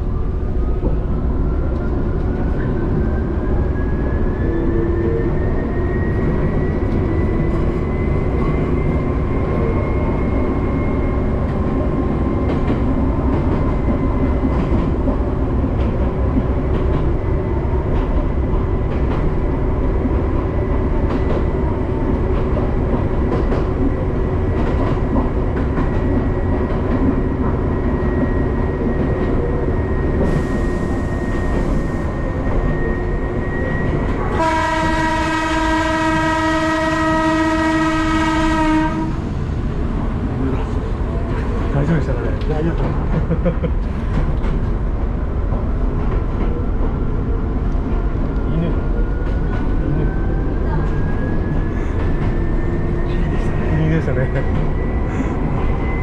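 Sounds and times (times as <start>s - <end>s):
train rumble: 0.0s - 56.0s
rail clicks: 20.0s - 31.9s, 40.6s - 53.7s
train horn blast: 34.3s - 39.3s.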